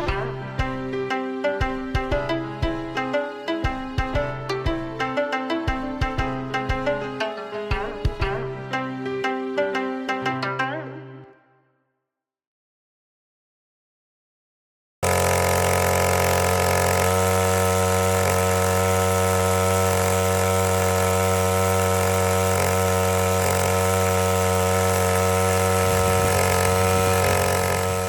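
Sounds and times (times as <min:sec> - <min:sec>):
small pump engine running: 0:00.0 - 0:08.8, 0:15.0 - 0:28.0.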